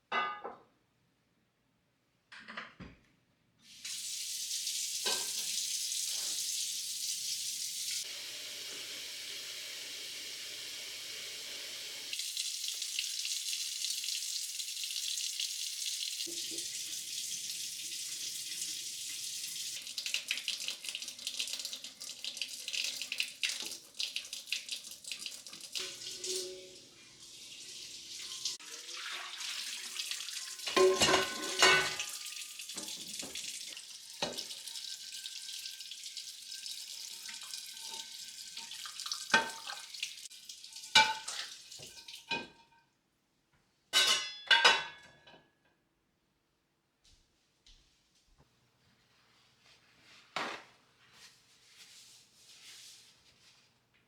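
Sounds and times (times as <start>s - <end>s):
splashing and clatter of rinsing: 28.2s - 42.6s.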